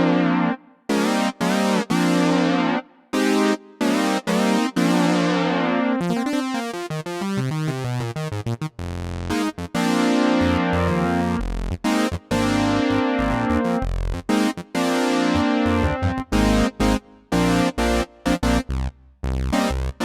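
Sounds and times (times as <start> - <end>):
synthesizer chords and runs: 0.0 - 18.8, 19.5 - 20.0
deep synth bass notes: 10.4 - 14.4, 15.3 - 20.0.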